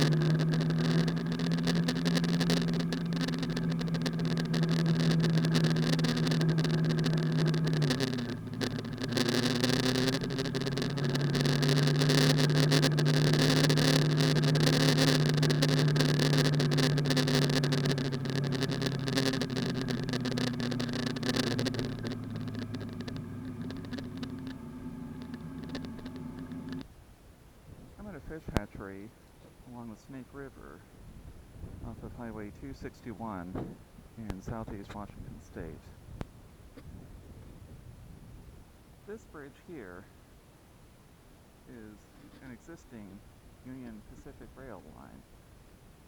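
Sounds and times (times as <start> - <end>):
car engine driving: 0.0 - 26.9, 31.6 - 36.1.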